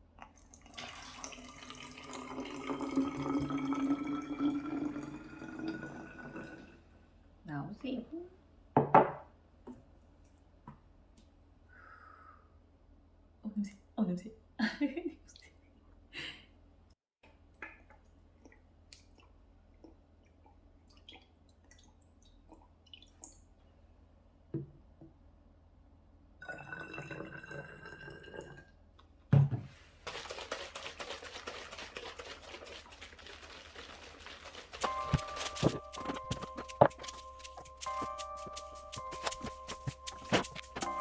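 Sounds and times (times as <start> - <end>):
water running from a tap: 0.5 - 6.3, 30.1 - 41.0.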